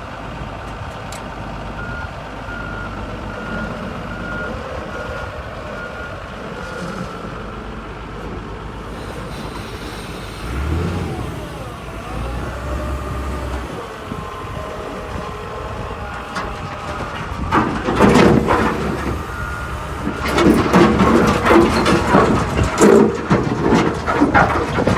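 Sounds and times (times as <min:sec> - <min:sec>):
heavy diesel engine running: 0:00.0 - 0:24.9
loud rough noise: 0:08.8 - 0:24.9
reversing alarm beeping: 0:14.1 - 0:22.7.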